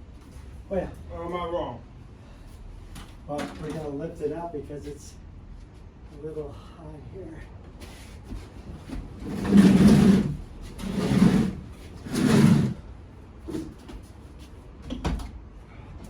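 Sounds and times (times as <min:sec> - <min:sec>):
heavy object scraping on surface: 0:09.2 - 0:12.8.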